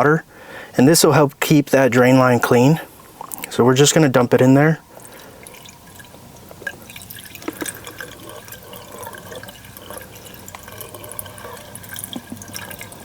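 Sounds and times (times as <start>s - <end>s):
liquid pouring into drain: 4.9s - 13.0s.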